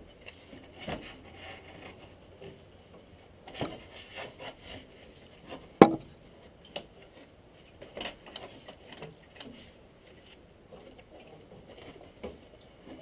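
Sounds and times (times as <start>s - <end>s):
sharp loud knock: 5.8s - 6.0s
tools knocking and scraping: 5.8s - 6.1s.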